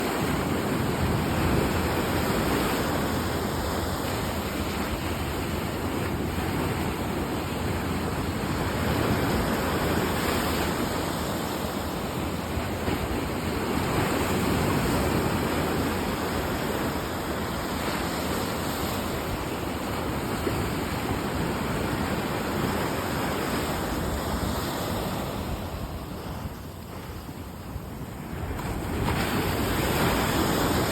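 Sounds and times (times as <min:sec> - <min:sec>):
wind noise on microphone: 0:00.0 - 0:30.9
heavy surf breaking: 0:07.7 - 0:30.9.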